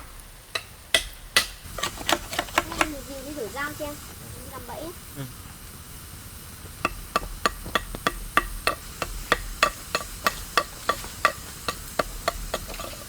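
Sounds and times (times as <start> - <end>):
knife chopping: 0.6 - 2.9, 6.8 - 13.0.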